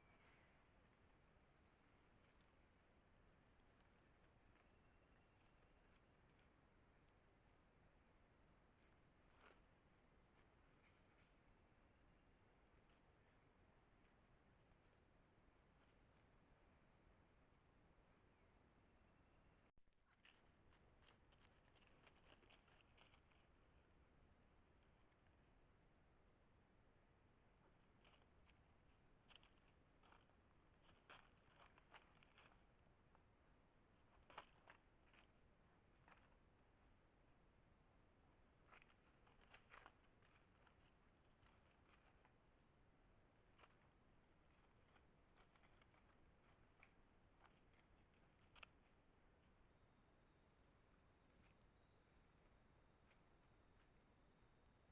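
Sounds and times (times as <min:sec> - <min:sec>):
insects trilling: 0:14.9 - 0:54.9
faint rustles or clicks: 0:20.0 - 0:25.3, 0:27.6 - 0:36.7, 0:37.7 - 0:49.7.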